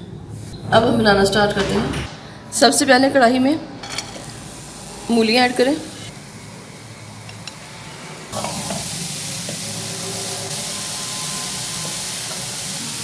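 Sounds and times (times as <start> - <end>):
radish sizzling in a pan: 8.3 - 13.0.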